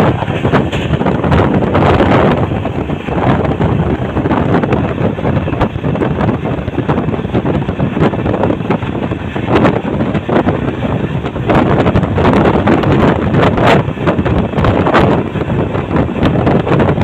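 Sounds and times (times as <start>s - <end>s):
train wheels clattering on rails: 0.0s - 17.0s
wind buffeting microphone: 0.0s - 17.0s.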